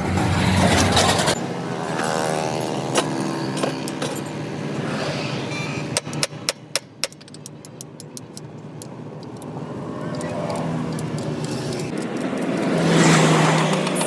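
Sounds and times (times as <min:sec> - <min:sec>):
light metallic clicks and taps: 0:06.0 - 0:12.9.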